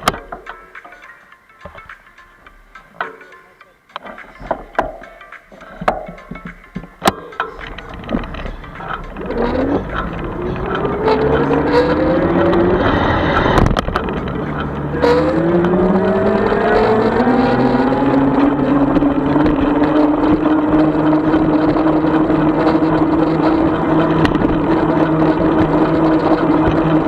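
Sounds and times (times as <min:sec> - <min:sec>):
clicks: 0:02.8 - 0:27.0
electric bike motor whining: 0:07.8 - 0:27.0.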